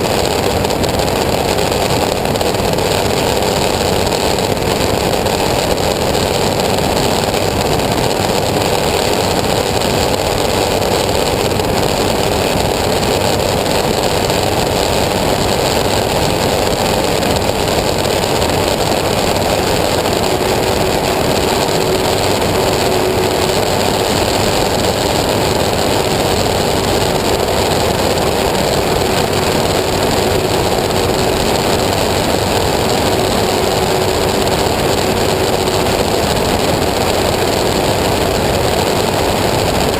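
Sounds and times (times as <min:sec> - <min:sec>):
aircraft engine running: 0:00.0 - 0:39.9.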